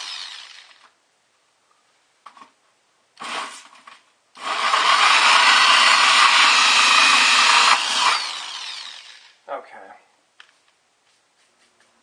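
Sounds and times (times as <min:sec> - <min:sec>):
power drill hole saw grinding: 0:00.0 - 0:00.9, 0:04.4 - 0:09.4.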